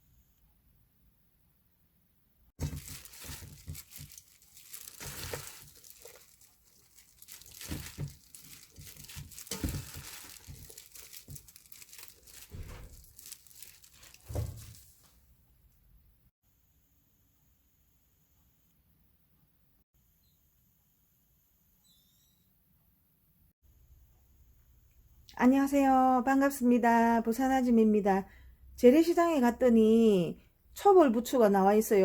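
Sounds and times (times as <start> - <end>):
crinkling and rustling: 2.6 - 15.2.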